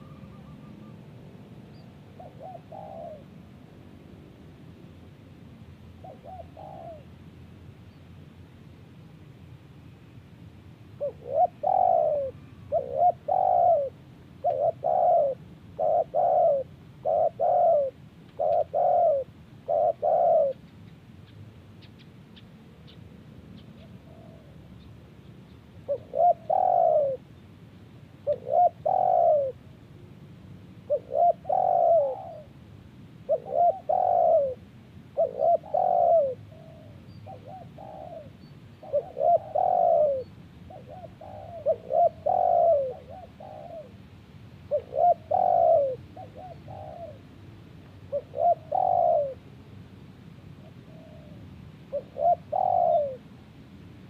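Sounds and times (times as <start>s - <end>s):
dove cooing: 0.0s - 3.5s, 6.0s - 7.2s, 11.0s - 20.8s, 23.6s - 24.7s, 25.8s - 27.3s, 28.2s - 29.6s, 30.8s - 32.6s, 33.2s - 44.0s, 44.6s - 47.3s, 48.1s - 49.5s, 50.6s - 53.4s.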